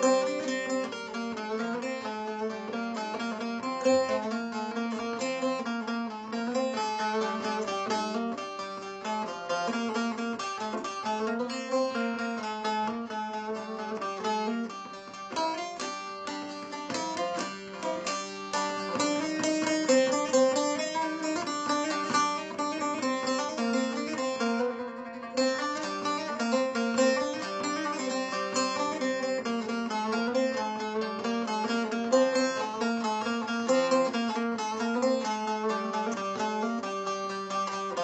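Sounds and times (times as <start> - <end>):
plucked lute melody: 0.0 - 38.0.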